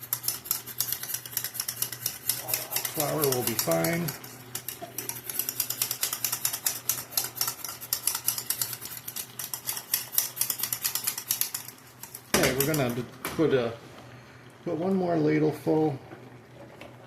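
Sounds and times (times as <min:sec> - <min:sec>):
whisk clicking against a pan: 0:00.0 - 0:13.1.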